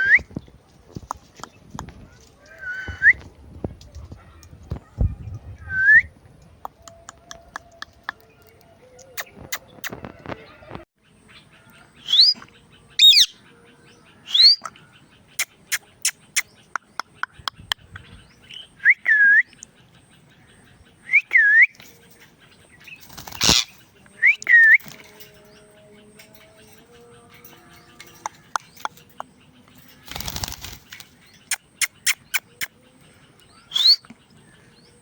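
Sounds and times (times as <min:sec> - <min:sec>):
parrot whistling: 0:33.7 - 0:34.0.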